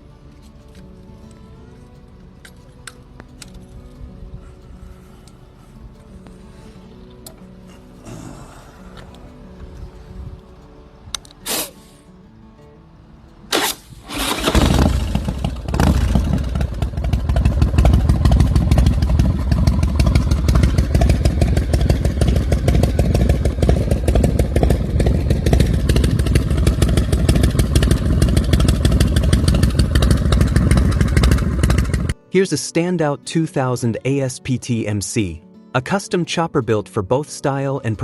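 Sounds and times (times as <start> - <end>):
motorcycle engine running loudly: 14.0 - 32.2.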